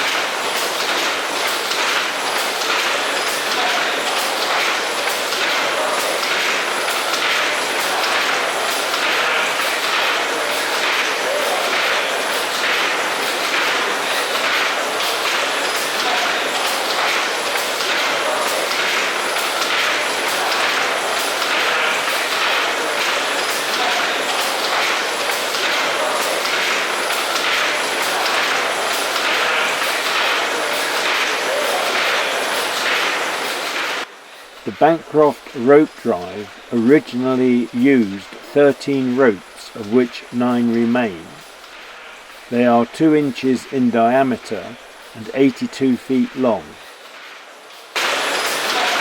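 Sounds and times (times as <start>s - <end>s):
steam engine pulsing: 0.0s - 49.0s
steam engine rhythmic beat: 34.5s - 46.8s.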